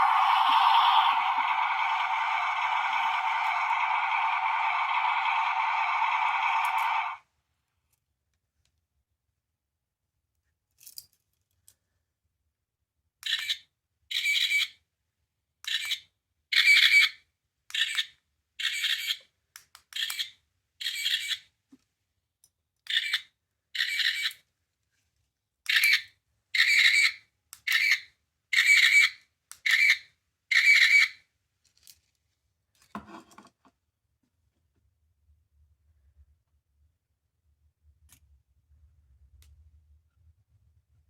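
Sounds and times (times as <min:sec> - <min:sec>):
toy speaker playing hissy sound clips: 0:00.0 - 0:07.2.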